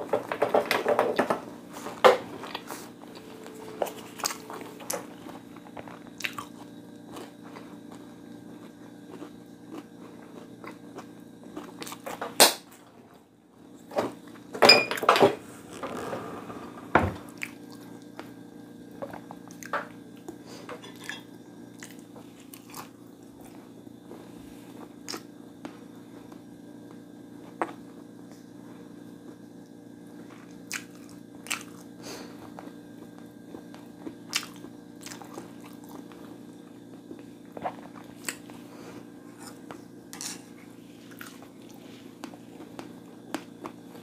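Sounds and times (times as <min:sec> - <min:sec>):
steady low hum: 0:00.0 - 0:44.0
chewing clicks: 0:06.2 - 0:07.3.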